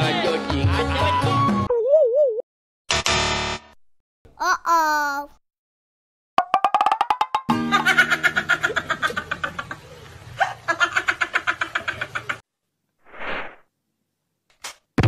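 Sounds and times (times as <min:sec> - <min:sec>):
cartoon laughter: 0:07.6 - 0:12.4
short whoosh: 0:13.0 - 0:13.6.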